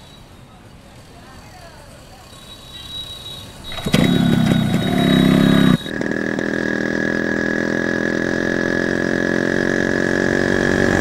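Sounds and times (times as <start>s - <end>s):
motorcycle engine revving: 3.6s - 11.0s
motorcycle engine running steadily: 3.6s - 11.0s.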